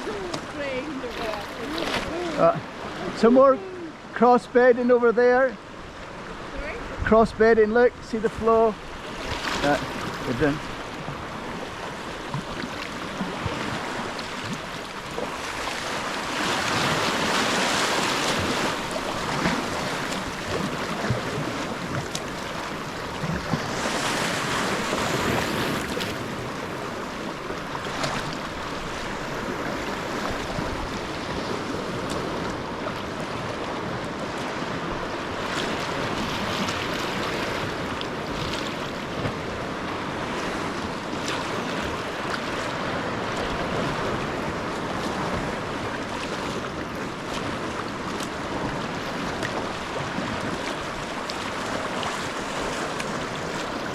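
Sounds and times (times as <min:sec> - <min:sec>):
water splashing around kayak: 0:00.0 - 0:53.9.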